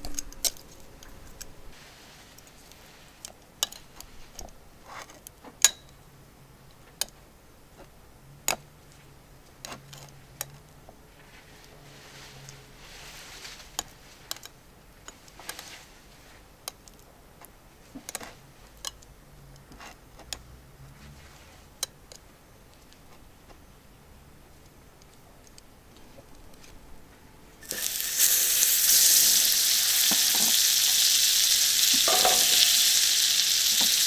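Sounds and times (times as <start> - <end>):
chicken frying pops: 27.6 - 34.0
faint sizzle: 27.6 - 34.0.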